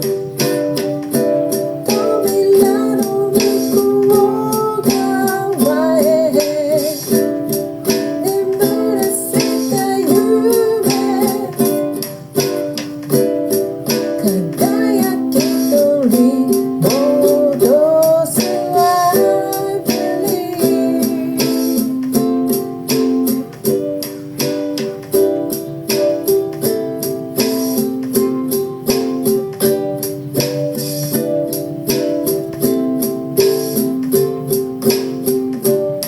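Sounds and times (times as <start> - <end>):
person singing: 0.0 - 12.6, 13.5 - 23.4
ukulele strumming: 0.0 - 36.0.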